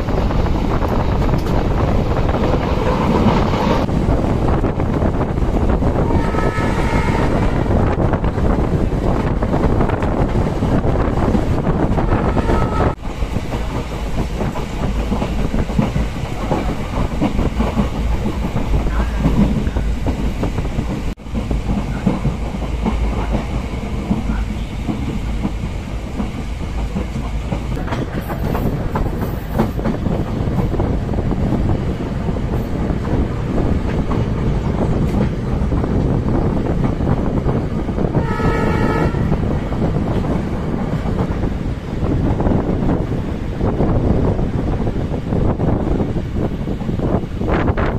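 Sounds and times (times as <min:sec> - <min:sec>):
wheels clicking over rail joints: 0:00.0 - 0:06.1, 0:13.0 - 0:44.4
train running rumble: 0:00.0 - 0:47.9
train horn: 0:06.0 - 0:07.9, 0:12.0 - 0:13.0, 0:38.2 - 0:39.5.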